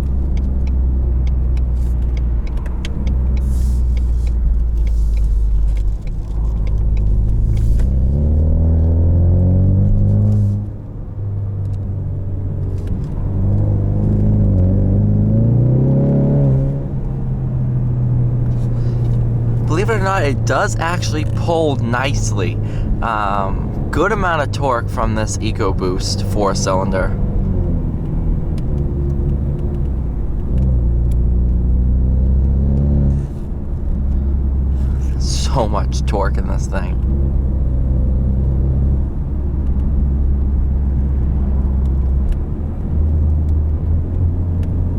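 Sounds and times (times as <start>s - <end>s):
car engine accelerating: 0.0s - 44.9s.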